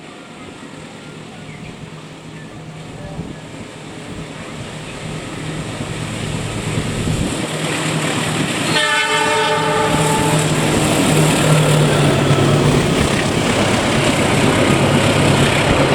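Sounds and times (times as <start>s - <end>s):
diesel train engine drone: 0.0s - 15.9s
train horn blast: 8.6s - 12.8s.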